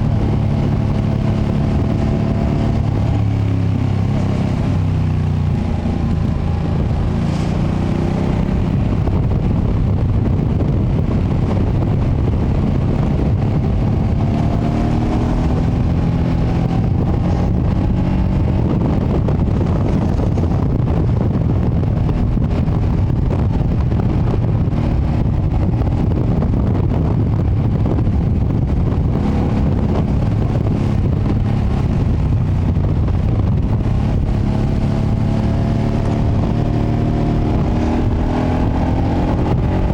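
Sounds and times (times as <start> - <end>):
motorcycle engine revving: 0.0 - 39.9
wind buffeting microphone: 0.0 - 39.9.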